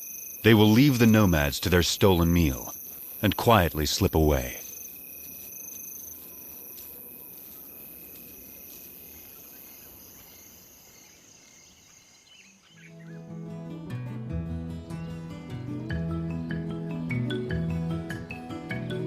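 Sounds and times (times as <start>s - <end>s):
crickets and insects chirring: 0.0s - 13.6s
music with mallet notes: 15.0s - 19.0s.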